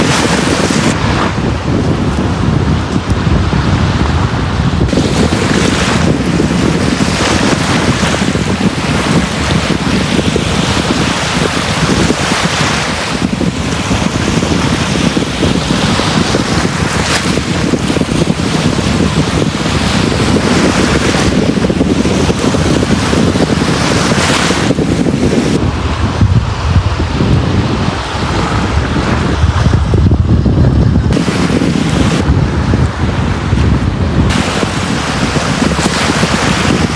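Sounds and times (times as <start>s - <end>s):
waves breaking on beach: 0.0s - 29.9s, 31.1s - 36.9s
deep rumble: 25.0s - 35.8s.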